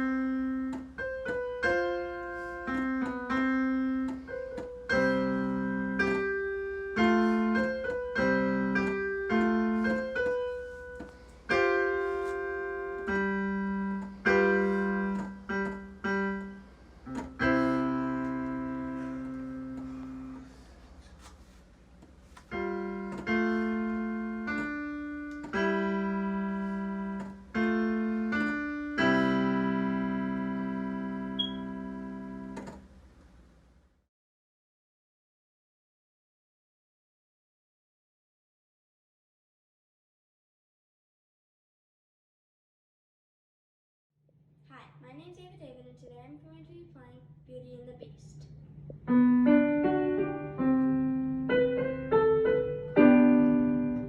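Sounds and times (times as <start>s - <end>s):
slow piano chords: 0.0s - 20.9s, 22.2s - 33.0s, 48.5s - 54.0s.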